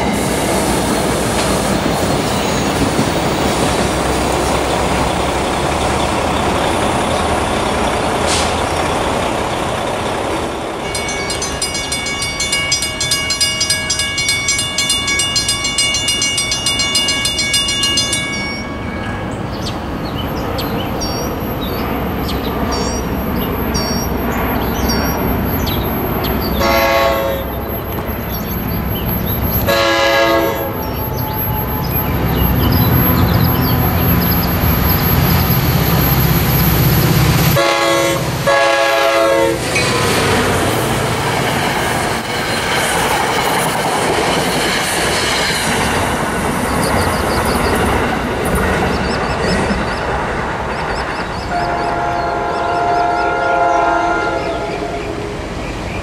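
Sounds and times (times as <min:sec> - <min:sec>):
train wheels rumbling on rail: 0:00.0 - 0:56.0
crossing bell ringing rapidly: 0:10.8 - 0:19.8
locomotive horn: 0:26.6 - 0:27.8, 0:29.6 - 0:31.7, 0:37.4 - 0:40.0, 0:51.5 - 0:55.0.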